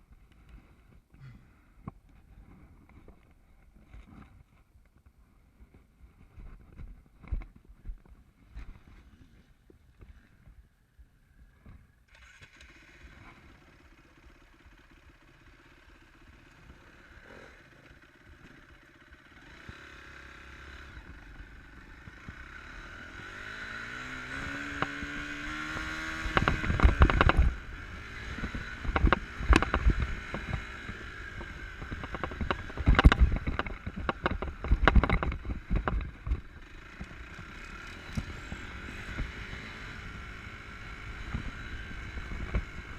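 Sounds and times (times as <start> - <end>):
motorcycle engine revving: 12.1 - 42.9.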